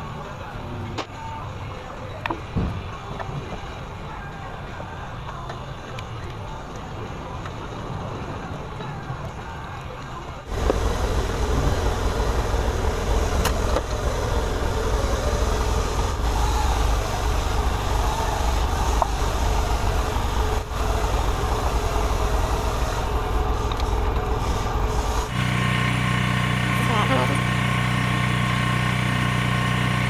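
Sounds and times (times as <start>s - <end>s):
machine running with low rumble: 10.4s - 30.0s.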